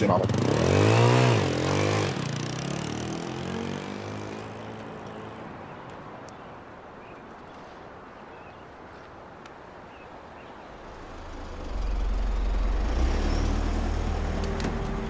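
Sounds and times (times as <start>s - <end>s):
vehicle engine rumble: 0.0s - 15.0s
faint outdoor hum: 3.1s - 15.0s.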